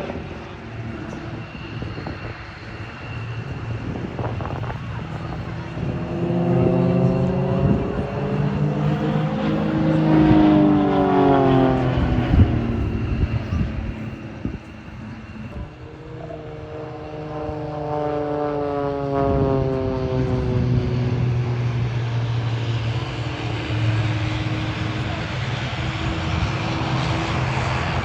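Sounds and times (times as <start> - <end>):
propeller aircraft flying past: 0.0 - 28.0.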